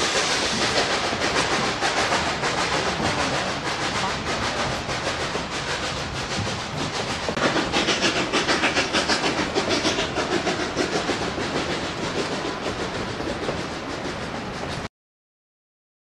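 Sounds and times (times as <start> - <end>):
steam locomotive chuffing: 0.0 - 14.9.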